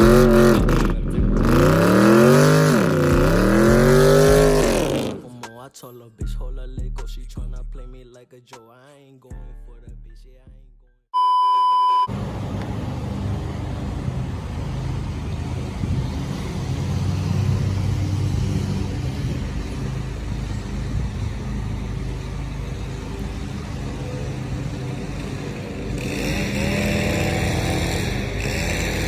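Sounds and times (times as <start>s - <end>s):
car engine idling: 0.0s - 5.2s, 12.1s - 29.0s.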